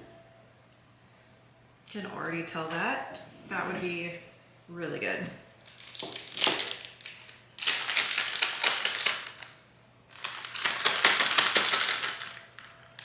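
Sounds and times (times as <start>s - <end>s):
plastic piping bag crinkling: 5.6s - 13.0s.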